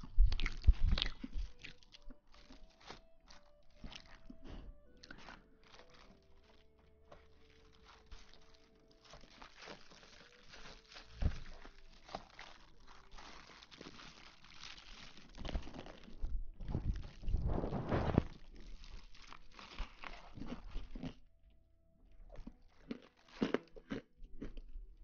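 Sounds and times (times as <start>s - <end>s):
crinkling and crunching: 0.0s - 21.3s, 22.0s - 25.0s
faint background music: 0.0s - 25.0s.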